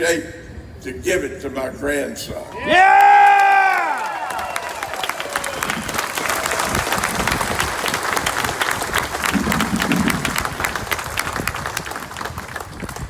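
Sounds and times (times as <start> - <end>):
crowd applauding: 2.9 - 13.0.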